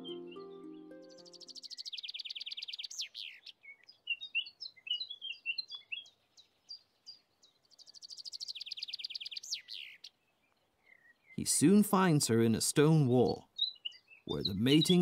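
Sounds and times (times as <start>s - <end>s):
songbird trilling: 0.0s - 7.2s, 7.8s - 10.2s, 13.2s - 15.0s
short bird chirps: 0.0s - 10.2s.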